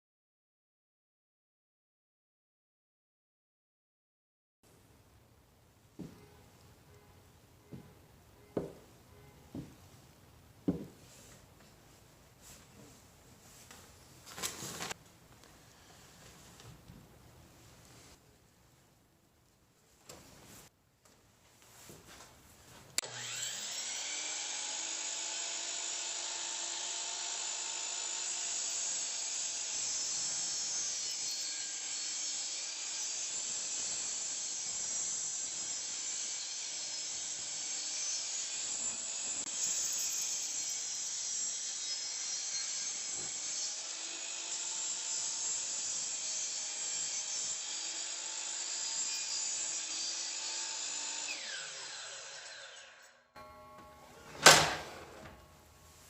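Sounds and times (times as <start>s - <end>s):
power tool cutting wood: 23.0s - 53.4s.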